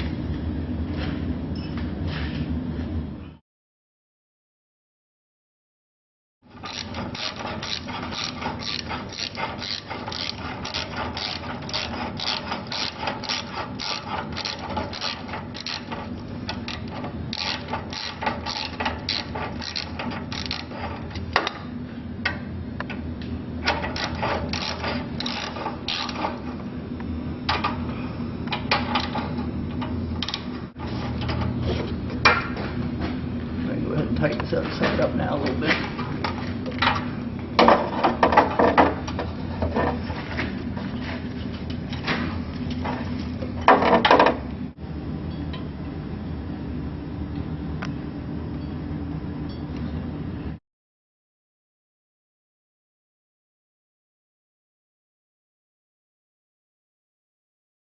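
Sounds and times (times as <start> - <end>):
ratchet wrench clicking: 6.6 - 15.9, 16.7 - 20.8, 23.9 - 26.3.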